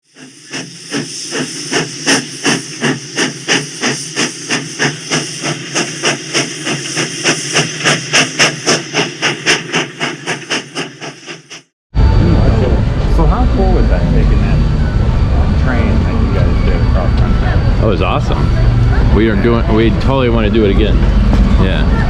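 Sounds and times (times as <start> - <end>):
steam hiss: 0.0 - 11.7
steam locomotive chuffing: 0.0 - 22.0.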